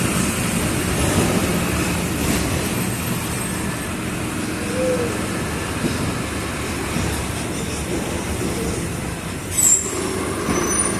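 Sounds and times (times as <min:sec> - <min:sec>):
bus diesel engine rumble: 0:00.0 - 0:10.9
road noise: 0:00.0 - 0:10.9
faint squeal: 0:09.5 - 0:10.9.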